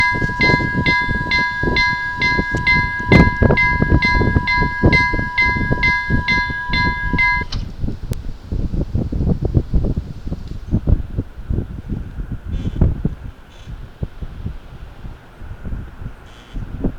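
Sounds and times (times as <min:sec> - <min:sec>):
level crossing bell ringing: 0:00.0 - 0:07.5.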